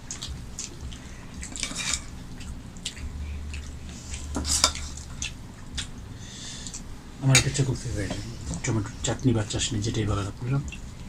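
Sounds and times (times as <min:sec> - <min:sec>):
plates and utensils clinking: 0:01.5 - 0:02.1.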